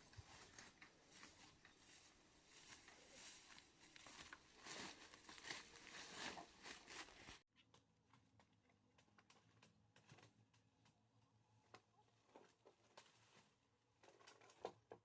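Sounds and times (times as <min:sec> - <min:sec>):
rustling and crinkling: 0:00.0 - 0:07.4, 0:11.6 - 0:15.0.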